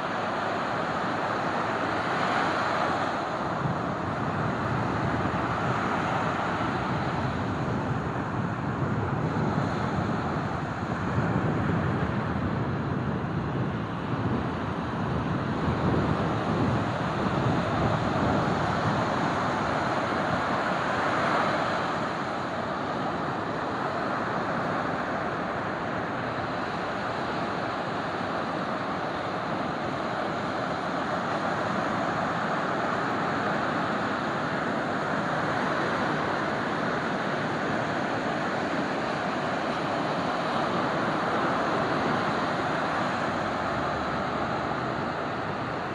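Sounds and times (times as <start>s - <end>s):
ocean surf breaking on beach: 0.0s - 45.9s.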